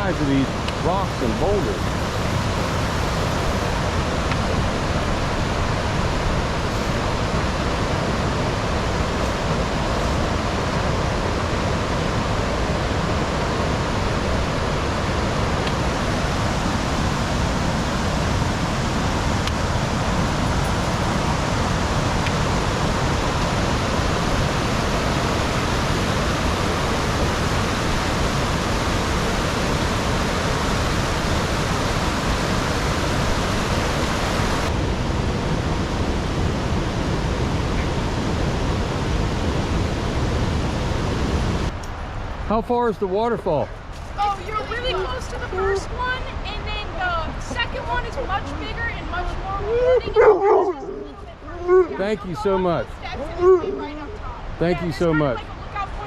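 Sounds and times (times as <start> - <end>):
river rushing over rocks: 0.0 - 43.2.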